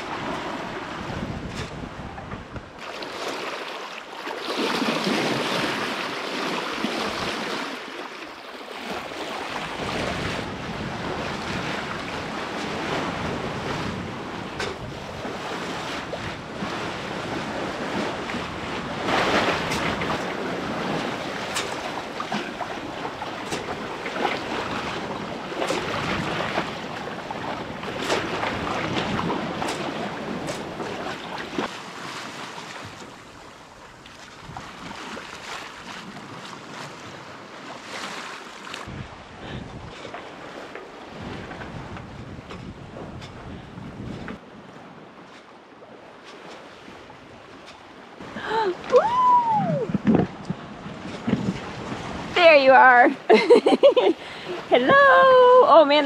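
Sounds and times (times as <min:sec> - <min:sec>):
wind buffeting microphone: 0:00.0 - 0:02.8, 0:09.5 - 0:31.7, 0:38.8 - 0:45.9, 0:46.7 - 0:56.0
sea water rushing and splashing: 0:00.0 - 0:56.0.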